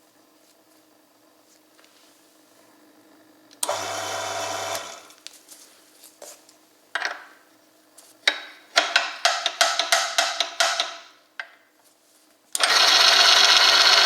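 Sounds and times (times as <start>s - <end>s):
small electric motor humming: 3.6s - 5.2s, 12.6s - 14.0s.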